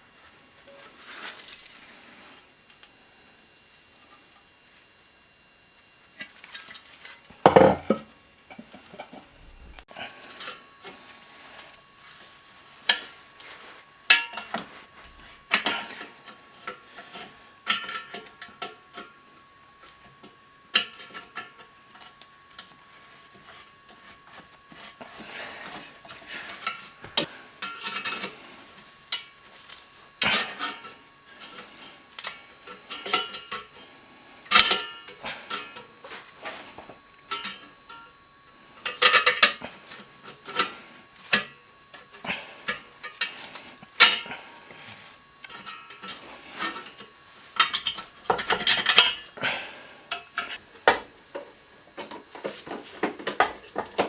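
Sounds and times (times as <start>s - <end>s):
metal tools clinking and clanking: 47.6s - 49.3s.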